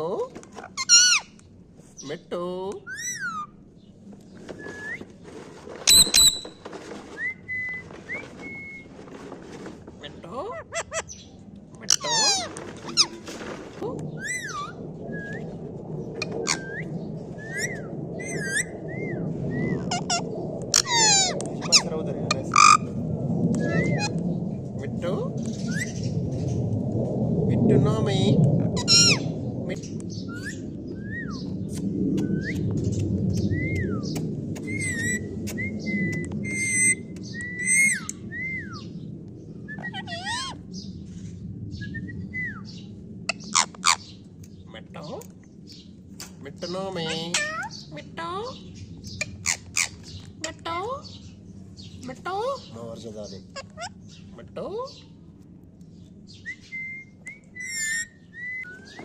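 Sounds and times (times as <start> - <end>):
parrot whistling and chirping: 0.6 - 1.3, 2.9 - 3.6, 4.5 - 5.1, 5.9 - 8.9, 11.9 - 13.2, 14.2 - 15.6, 16.2 - 21.8, 23.6 - 24.2, 25.6 - 26.1, 28.8 - 29.3, 30.2 - 38.9, 39.6 - 40.7, 41.7 - 44.0, 49.2 - 50.2, 56.3 - 59.0
parrot squawking: 0.6 - 1.4, 2.9 - 3.6, 5.9 - 6.5, 10.0 - 11.2, 11.8 - 13.3, 14.2 - 14.8, 16.2 - 16.9, 17.5 - 22.9, 23.6 - 24.2, 28.8 - 29.3, 34.6 - 35.3, 36.0 - 38.8, 39.8 - 40.6, 43.3 - 44.1, 46.6 - 50.9, 53.4 - 54.2, 57.6 - 59.0.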